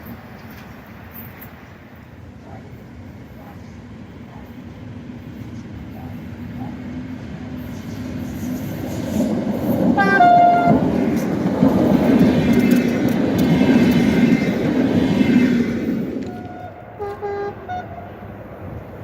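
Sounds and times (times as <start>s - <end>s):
passing train rumble: 0.0s - 19.0s
train horn toot: 10.0s - 10.8s, 16.2s - 18.3s.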